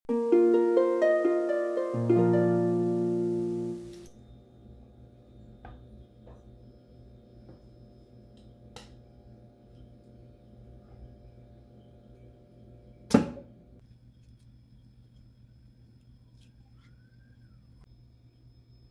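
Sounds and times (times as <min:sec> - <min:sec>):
harp-like plucked-string music: 0:00.1 - 0:03.9
quiet steady hum: 0:02.1 - 0:18.9.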